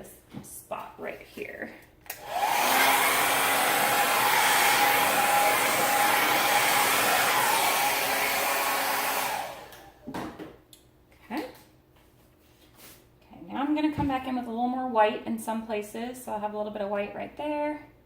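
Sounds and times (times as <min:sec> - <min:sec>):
hair dryer running: 0:02.1 - 0:10.1.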